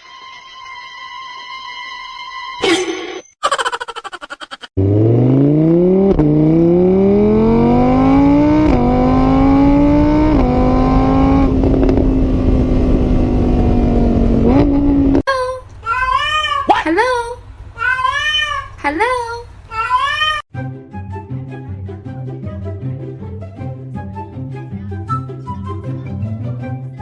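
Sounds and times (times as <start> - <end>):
car engine accelerating: 4.8 - 15.3.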